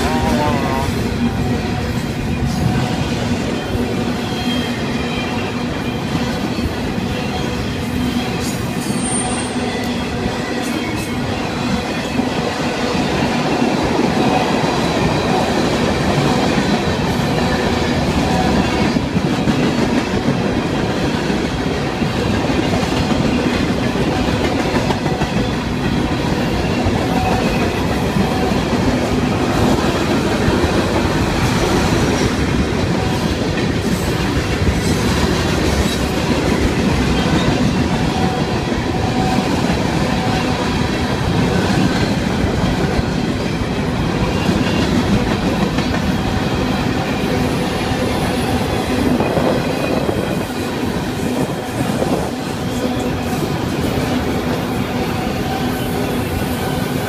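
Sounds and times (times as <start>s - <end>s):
steel wheels on rails: 0.0s - 57.0s.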